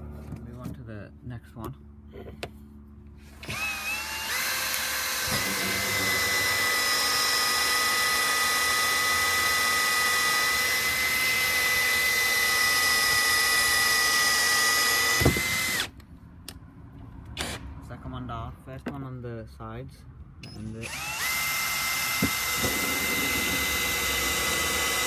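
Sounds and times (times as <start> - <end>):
power drill whining: 3.2 - 16.0, 20.7 - 25.0.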